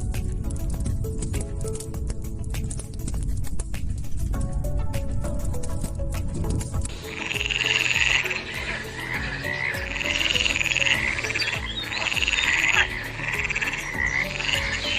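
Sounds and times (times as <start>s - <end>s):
frogs trilling: 6.9s - 14.9s.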